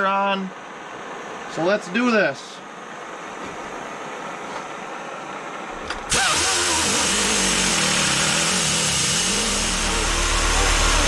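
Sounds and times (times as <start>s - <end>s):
pneumatic angle grinder running: 6.0s - 11.0s
torch hissing: 6.1s - 11.0s.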